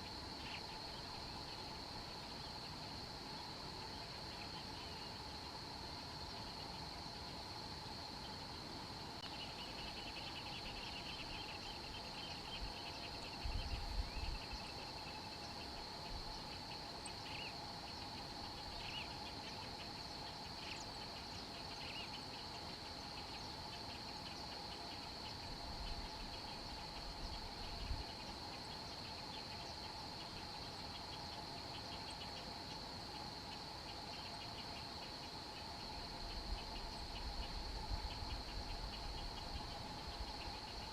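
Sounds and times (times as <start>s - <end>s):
low insect drone: 0.0s - 40.9s.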